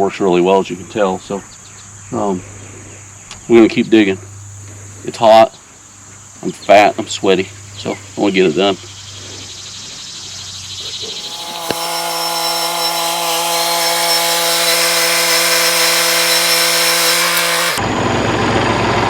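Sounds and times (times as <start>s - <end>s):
motor running: 11.1s - 18.1s.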